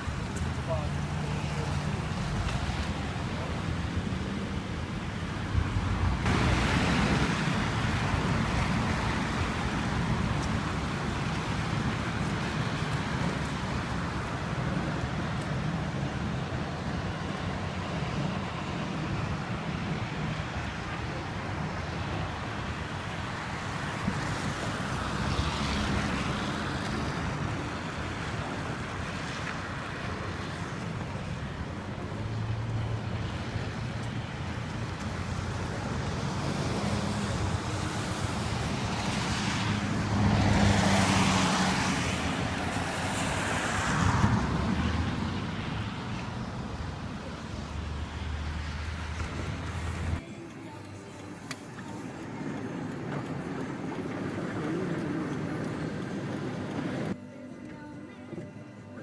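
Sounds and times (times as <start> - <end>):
storm wind and water rushing: 1.7 - 50.6, 51.4 - 57.2
wind buffeting microphone: 51.8 - 57.2.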